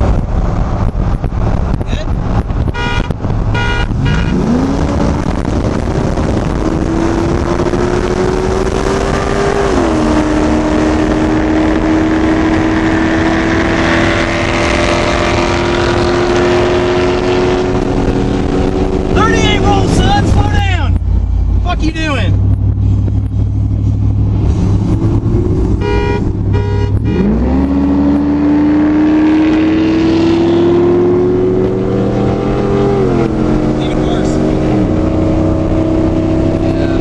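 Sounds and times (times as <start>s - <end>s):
short car honks: 2.7s - 4.4s, 25.8s - 27.3s
engine revving at full throttle: 3.6s - 20.1s, 23.8s - 37.0s.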